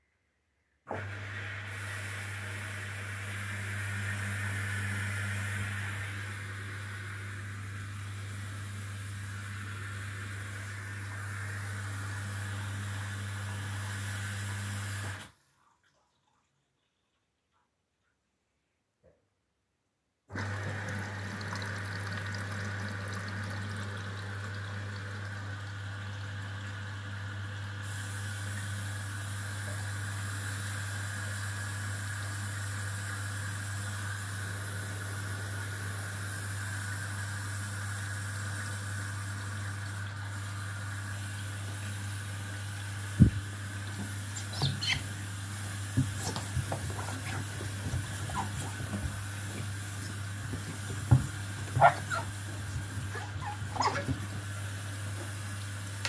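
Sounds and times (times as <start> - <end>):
water running into washing machine: 20.3 - 56.0.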